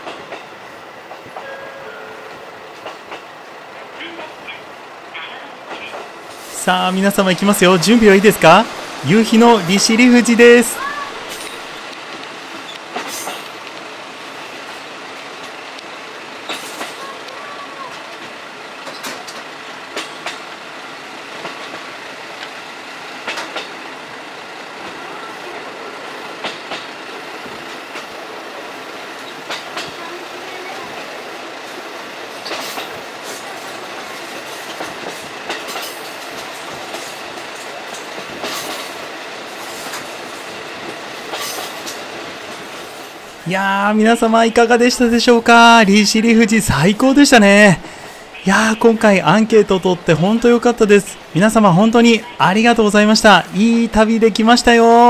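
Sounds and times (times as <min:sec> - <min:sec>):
loud rail clacks: 0:00.0 - 0:04.6, 0:05.6 - 0:43.5
rumble of train wheels on rail: 0:00.0 - 0:55.0.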